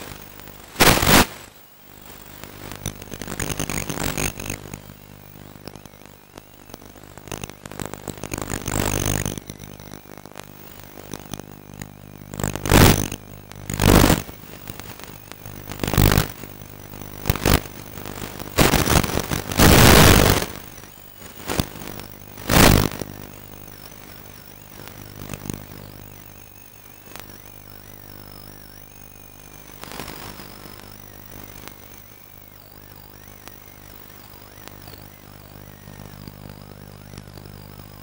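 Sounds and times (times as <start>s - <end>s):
model aeroplane motor whine: 23.0s - 38.0s.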